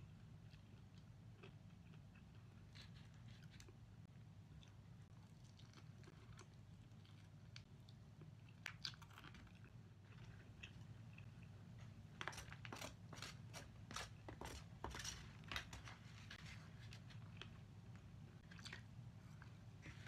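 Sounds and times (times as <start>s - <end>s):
person chewing crunchy chicken: 4.5s - 11.6s.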